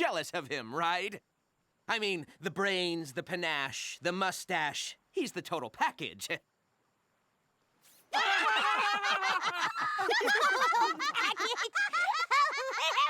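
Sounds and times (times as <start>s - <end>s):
cartoon characters laughing: 8.2s - 13.0s.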